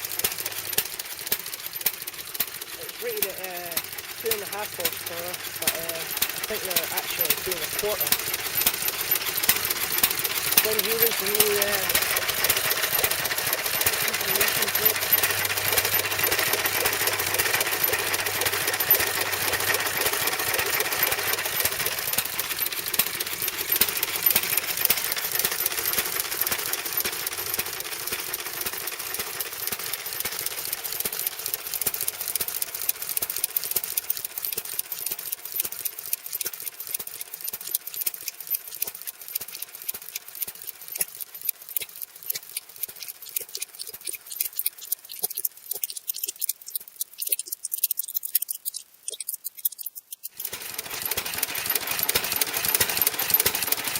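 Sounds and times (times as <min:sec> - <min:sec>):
stationary engine clattering: 0:00.0 - 0:53.9.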